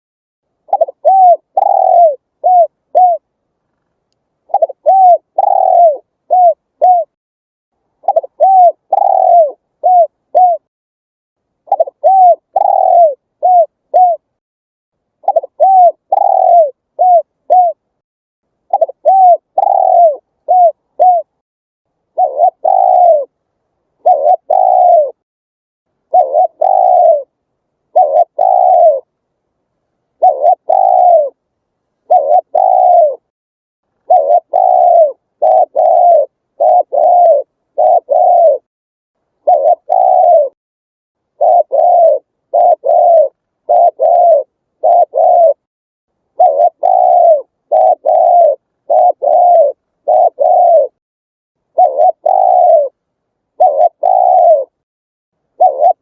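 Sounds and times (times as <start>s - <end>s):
dove cooing: 0.7s - 3.3s, 4.4s - 7.2s, 8.0s - 10.7s, 11.6s - 14.3s, 15.2s - 17.8s, 18.7s - 21.4s, 22.1s - 23.4s, 24.0s - 25.2s, 26.1s - 29.1s, 30.2s - 31.4s, 32.0s - 33.3s, 34.0s - 38.7s, 39.4s - 40.6s, 41.3s - 45.7s, 46.3s - 51.0s, 51.7s - 54.8s, 55.5s - 56.0s.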